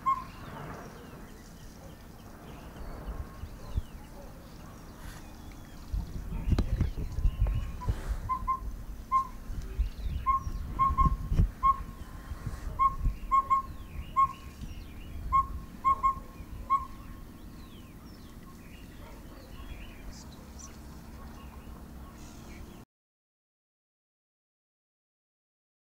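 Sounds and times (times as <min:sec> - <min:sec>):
bird whistled call: 0:00.0 - 0:01.4, 0:07.3 - 0:17.8.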